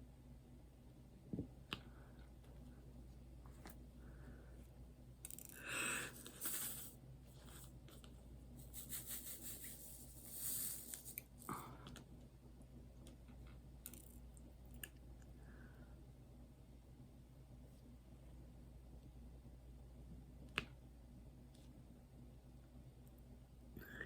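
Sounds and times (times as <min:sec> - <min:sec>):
rustling and scraping: 0:06.2 - 0:11.5.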